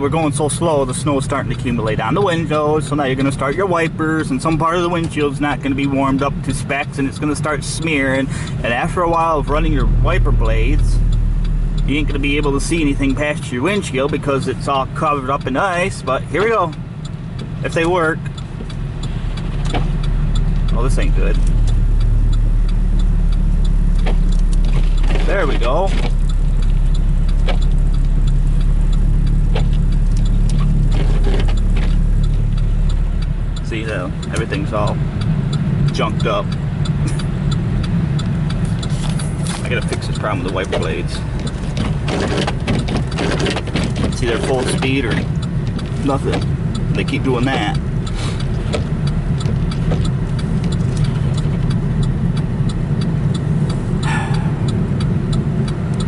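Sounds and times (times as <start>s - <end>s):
engine and road noise: 0.0s - 56.0s
windshield wipers knocking: 11.8s - 56.0s.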